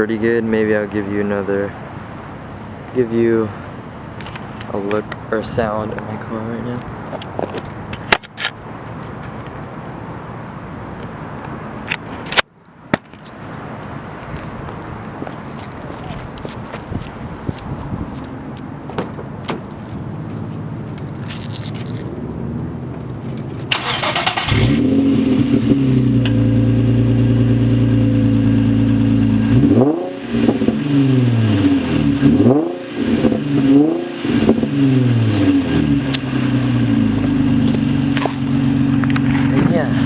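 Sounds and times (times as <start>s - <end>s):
car engine idling: 22.9s - 40.0s
car engine revving: 23.6s - 40.0s
starter motor cranking: 23.7s - 25.0s.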